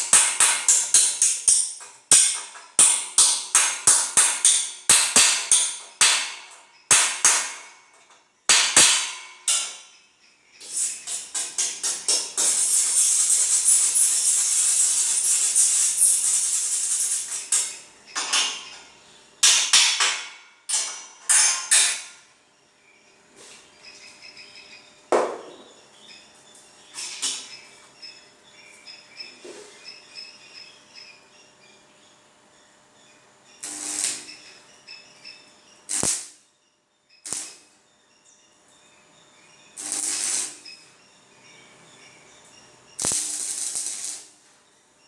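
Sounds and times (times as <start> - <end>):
arc welding crackling: 0.0 - 6.4, 10.6 - 17.8, 33.6 - 34.6, 35.8 - 36.4, 37.2 - 37.8, 39.7 - 41.0, 43.0 - 44.7
sharp knocks: 25.1 - 25.7.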